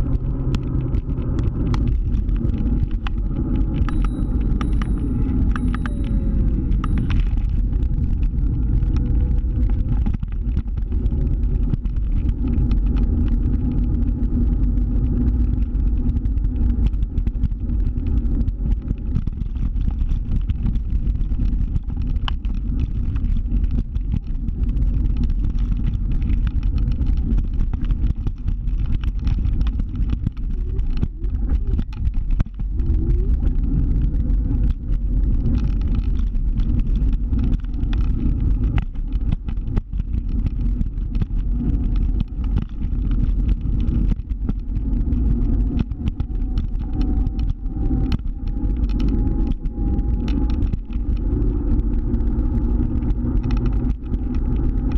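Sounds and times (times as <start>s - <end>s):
scooter engine rumbling: 0.0s - 40.8s.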